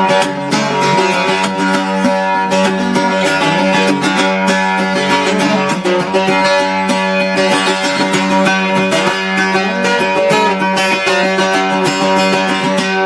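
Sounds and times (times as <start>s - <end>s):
octave mandolin picked notes: 0.0s - 13.0s.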